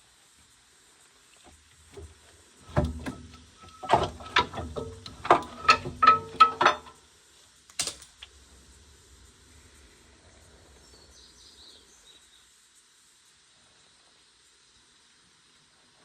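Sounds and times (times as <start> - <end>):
metal clanking with ringing tone: 2.0 - 7.0.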